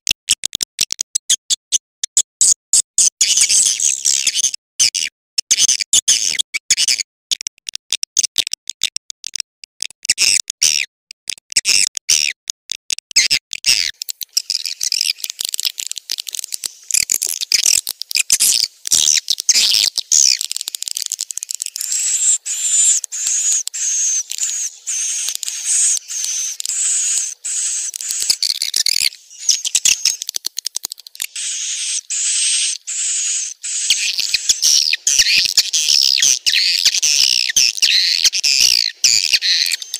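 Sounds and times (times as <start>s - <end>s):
swiftlets twittering: 14.0s - 39.9s.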